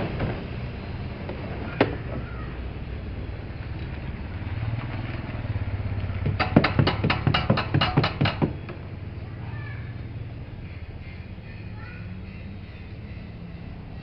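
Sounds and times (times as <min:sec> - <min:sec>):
steady low hum: 0:00.0 - 0:14.0
quick sharp knocks: 0:06.2 - 0:08.6.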